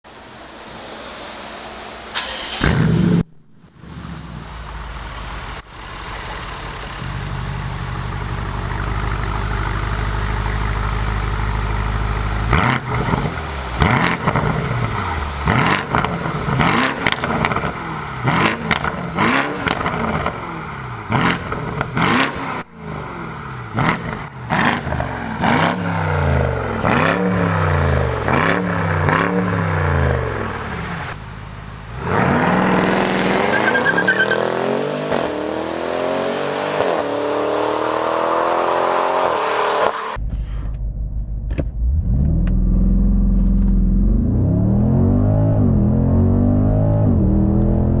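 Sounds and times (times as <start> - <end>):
car engine revving: 0.7 - 48.0
exhaust crackles and pops: 40.2 - 44.1.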